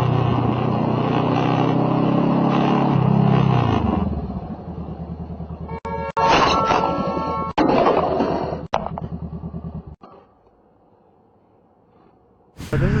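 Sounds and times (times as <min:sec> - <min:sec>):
steady higher tones: 0:12.6 - 0:13.0.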